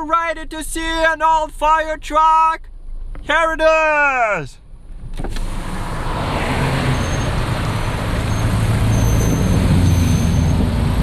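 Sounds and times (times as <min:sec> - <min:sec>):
road traffic hum: 0:02.5 - 0:03.4, 0:04.2 - 0:11.0.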